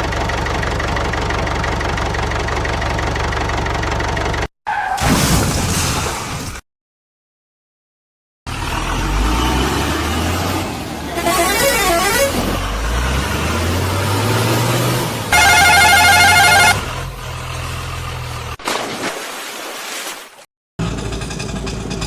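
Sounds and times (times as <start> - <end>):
vehicle engine running: 0.0 - 4.5, 15.3 - 18.6, 20.8 - 22.0
horn honk: 11.1 - 12.6, 15.3 - 17.0
short warbling tone: 15.3 - 16.9.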